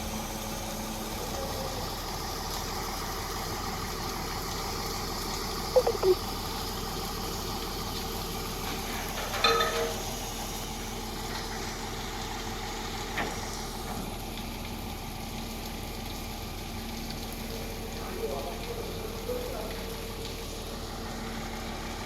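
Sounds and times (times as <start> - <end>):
brief high-pitched sound: 5.8 - 6.2.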